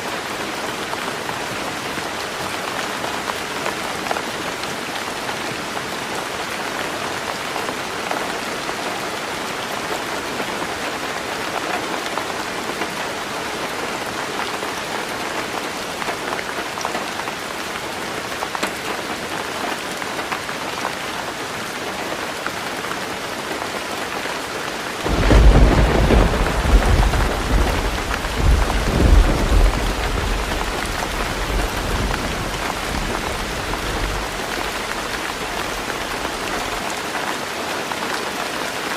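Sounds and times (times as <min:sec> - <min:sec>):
heavy rain on a tin roof: 0:00.0 - 0:38.9
deep thunder rumble: 0:25.1 - 0:35.9.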